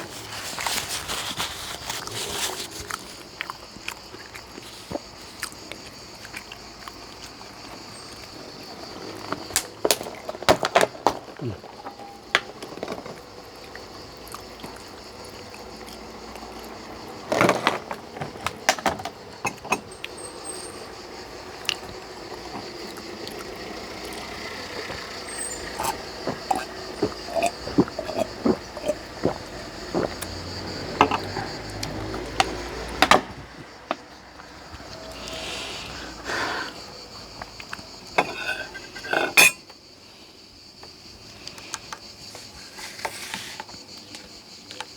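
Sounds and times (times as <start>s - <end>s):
food being chewed: 0.0s - 8.4s, 12.6s - 18.0s, 21.5s - 32.7s.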